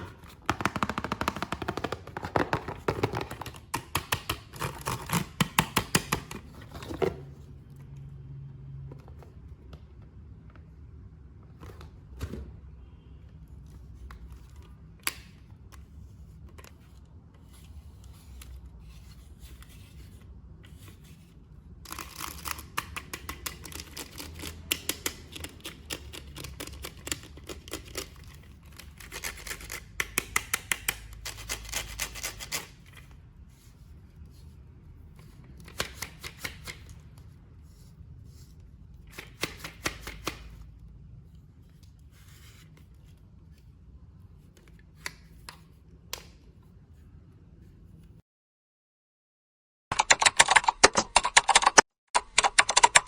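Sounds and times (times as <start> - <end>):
sharp clicks and snips: 49.9 - 53.0.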